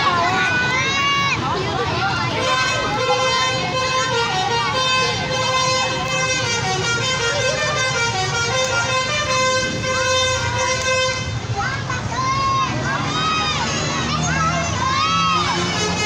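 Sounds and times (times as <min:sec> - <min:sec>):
people's voices: 0:00.0 - 0:16.0
steady loud horn tone: 0:02.3 - 0:11.4, 0:15.4 - 0:16.0.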